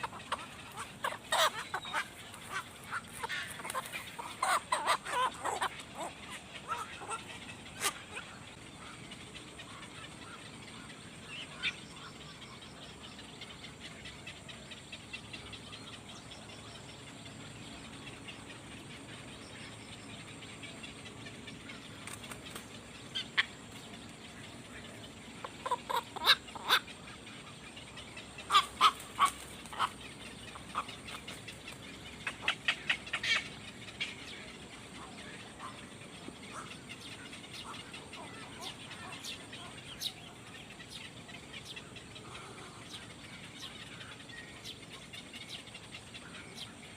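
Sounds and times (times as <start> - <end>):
birds chirping: 0.0 - 46.9.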